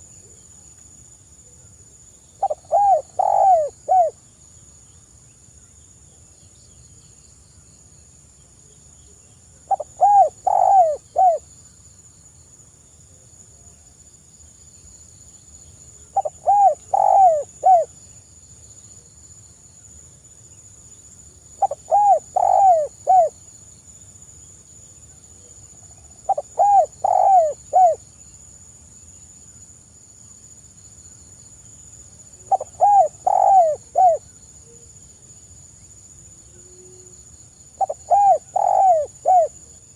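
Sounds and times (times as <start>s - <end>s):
dove cooing: 2.4s - 4.1s, 9.7s - 11.4s, 16.1s - 17.9s, 21.6s - 23.4s, 26.3s - 28.0s, 32.4s - 34.2s, 37.8s - 39.6s.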